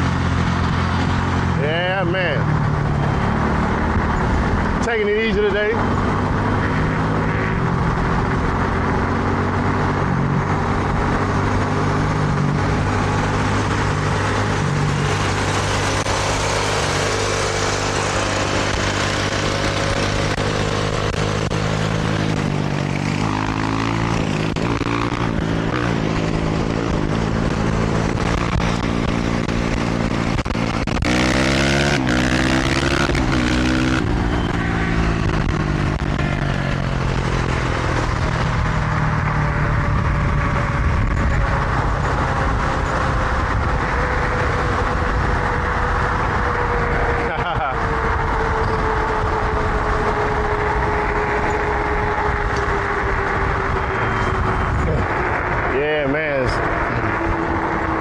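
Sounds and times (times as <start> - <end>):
rushing wind noise: 0.0 - 58.0
dirt bike engine revving: 3.0 - 35.6.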